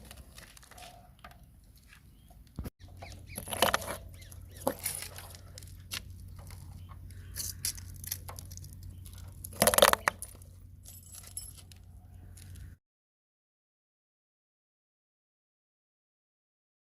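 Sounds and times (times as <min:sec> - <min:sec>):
low steady hum: 0:00.0 - 0:12.8
brittle objects crunching: 0:04.6 - 0:10.5.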